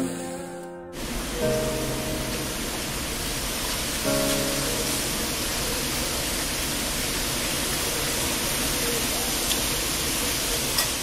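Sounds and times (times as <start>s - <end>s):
wind rushing through bamboo: 2.2s - 4.1s.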